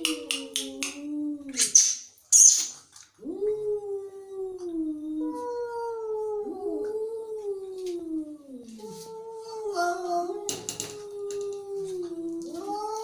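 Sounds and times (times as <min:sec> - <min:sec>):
cats yowling: 0:03.2 - 0:13.0.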